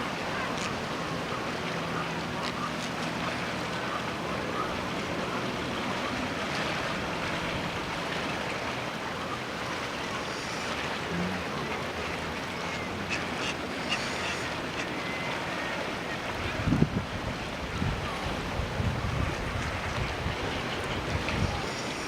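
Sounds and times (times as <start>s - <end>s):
wind blowing across microphone: 16.2s - 22.0s.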